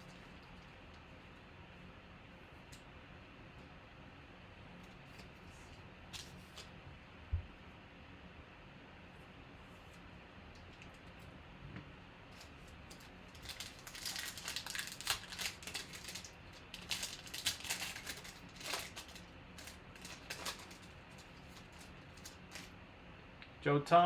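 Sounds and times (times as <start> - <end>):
trading cards rustling and clicking: 12.3 - 22.7.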